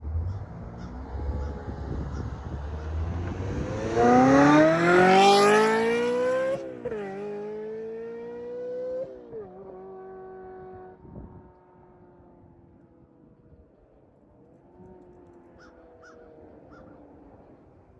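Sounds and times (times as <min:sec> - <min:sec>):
sports car engine accelerating: 0:00.0 - 0:11.2.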